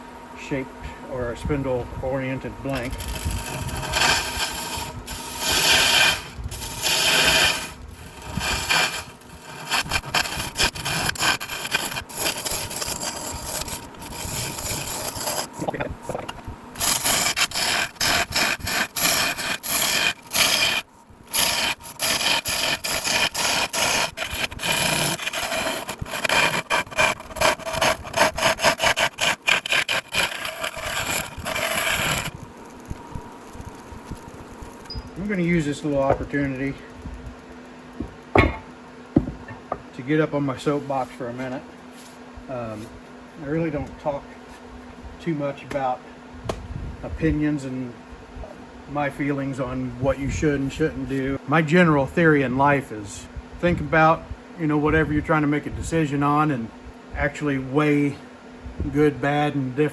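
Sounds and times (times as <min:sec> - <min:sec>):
wood lathe tool scraping: 0:02.4 - 0:37.0.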